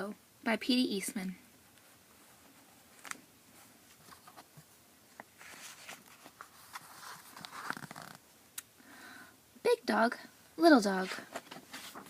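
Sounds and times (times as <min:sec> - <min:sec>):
paper rustling: 0:02.2 - 0:08.2, 0:11.0 - 0:12.0.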